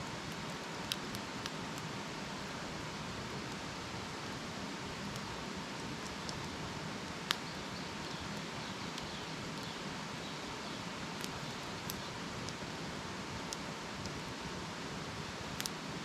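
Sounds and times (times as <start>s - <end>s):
campfire crackling and popping: 0.3s - 1.9s, 5.0s - 9.7s, 11.1s - 12.6s.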